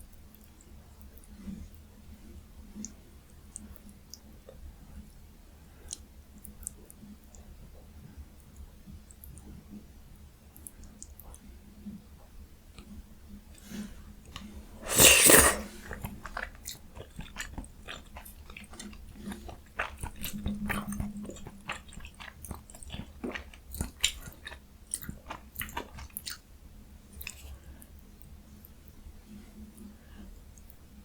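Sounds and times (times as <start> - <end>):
wet mouth clicks: 14.8 - 15.7
chewing and biting food: 14.9 - 26.4.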